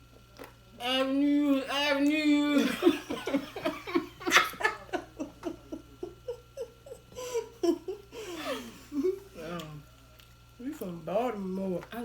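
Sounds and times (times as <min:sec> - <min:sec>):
woman laughing hard: 0:02.6 - 0:09.2.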